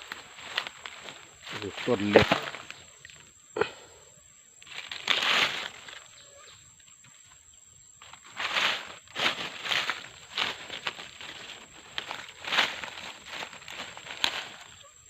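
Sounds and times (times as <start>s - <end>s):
footsteps crunching dry leaves: 0.0s - 3.0s, 4.6s - 6.2s, 8.0s - 15.0s.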